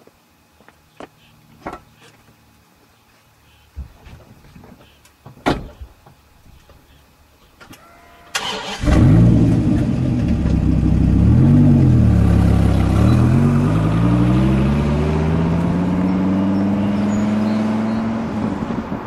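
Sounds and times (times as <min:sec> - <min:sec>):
car accelerating away: 0:08.4 - 0:19.0
car engine starting and revving: 0:08.4 - 0:19.0.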